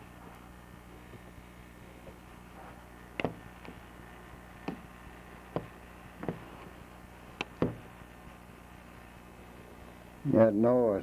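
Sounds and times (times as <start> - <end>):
knocks against glass door pane: 7.6 - 7.8.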